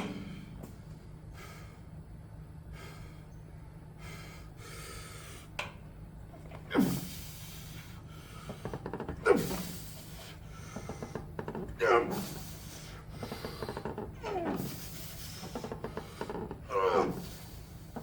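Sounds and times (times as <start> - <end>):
steady low hum: 0.0 - 18.0
person breathing hard: 1.3 - 1.9, 4.0 - 5.5.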